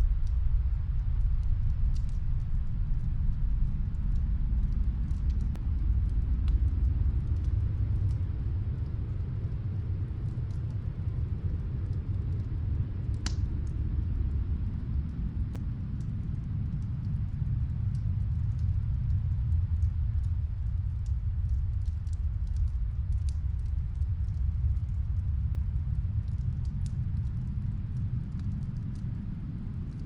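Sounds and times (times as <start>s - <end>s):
snowstorm wind rumble: 0.0s - 30.0s
wood fire crackling: 0.0s - 30.0s.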